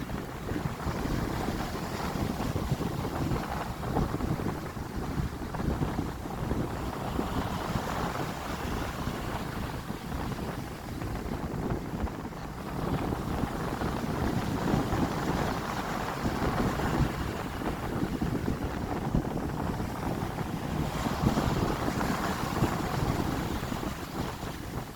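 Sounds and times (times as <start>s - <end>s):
wind buffeting microphone: 0.0s - 24.9s
stormy surf breaking: 12.5s - 24.9s.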